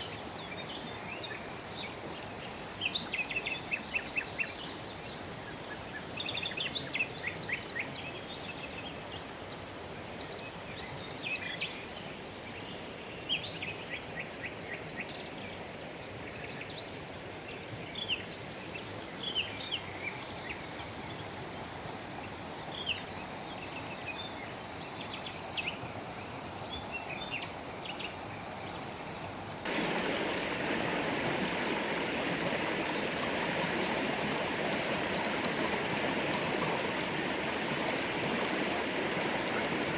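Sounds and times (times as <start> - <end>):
small songbirds chirping and trilling: 0.0 - 16.9, 17.5 - 39.9
river water flowing: 28.8 - 39.9.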